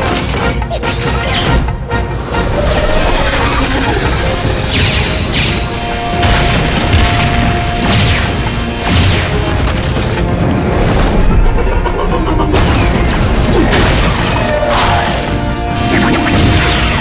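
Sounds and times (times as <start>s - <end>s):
cartoon music: 0.1s - 5.7s
swooshes falling in pitch: 1.9s - 6.2s.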